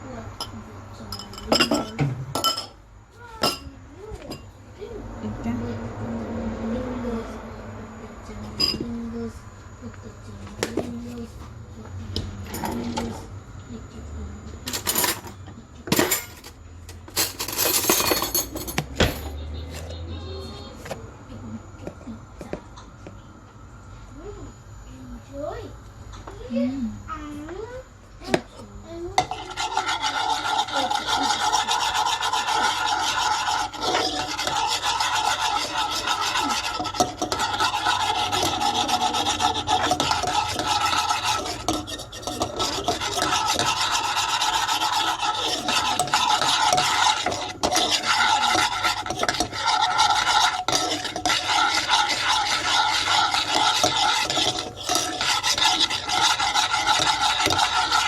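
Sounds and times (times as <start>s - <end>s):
gravy frying in fat: 28.9s - 58.0s
spoon scraping a pan: 29.2s - 58.0s.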